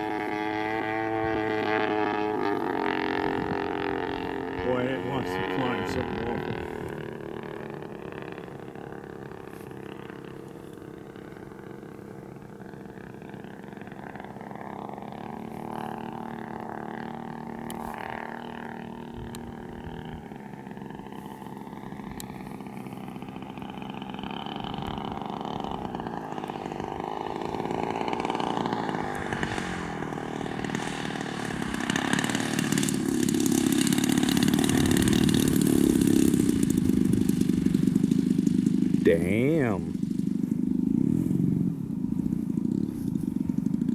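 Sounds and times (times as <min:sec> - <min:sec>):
model plane engine in flight: 0:00.0 - 0:43.9
man speaking: 0:04.6 - 0:06.5, 0:39.0 - 0:39.9.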